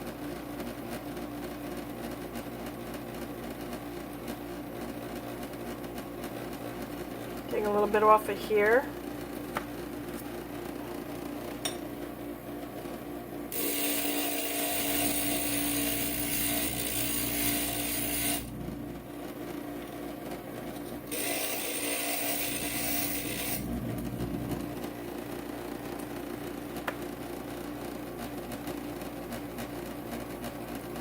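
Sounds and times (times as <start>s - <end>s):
glass grinding: 13.5s - 18.5s, 21.1s - 24.0s
glass grinder motor running: 13.5s - 18.8s, 21.0s - 24.6s.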